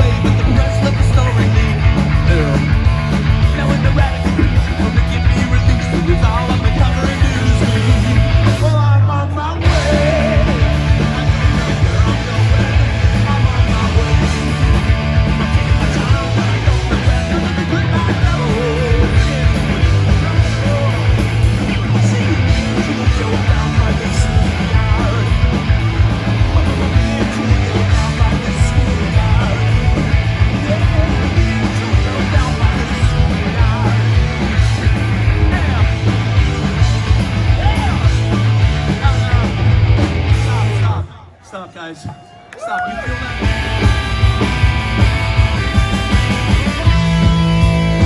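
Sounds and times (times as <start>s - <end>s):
distorted electric guitars: 0.0s - 41.2s, 42.7s - 48.0s
drums: 0.0s - 48.0s
shouted vocals: 37.4s - 48.0s.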